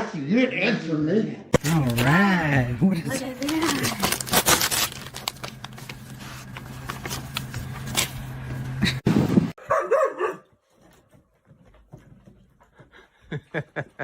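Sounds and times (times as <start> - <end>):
dog barking: 9.6 - 10.5.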